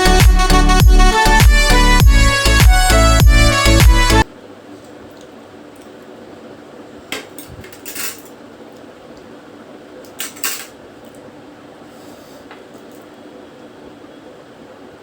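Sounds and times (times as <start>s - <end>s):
cutlery clinking on a plate: 7.2s - 8.4s, 10.2s - 10.8s.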